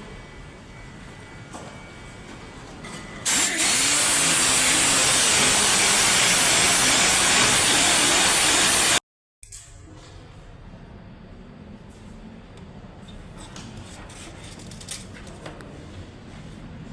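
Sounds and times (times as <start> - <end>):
power tool running: 3.2 - 9.0.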